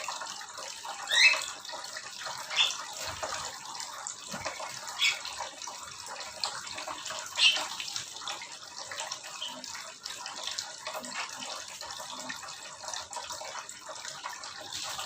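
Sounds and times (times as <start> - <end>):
birds chirping: 2.4 - 3.3, 4.4 - 5.4, 7.2 - 7.8.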